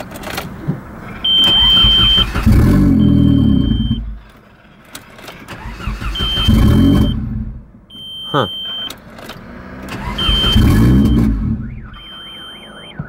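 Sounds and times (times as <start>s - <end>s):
engine cranking and starting: 0.0s - 7.6s, 8.7s - 12.5s
steady high tone: 10.2s - 13.0s.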